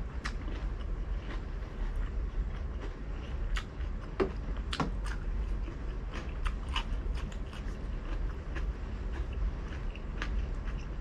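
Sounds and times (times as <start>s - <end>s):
crunchy wet chewing: 0.0s - 11.0s.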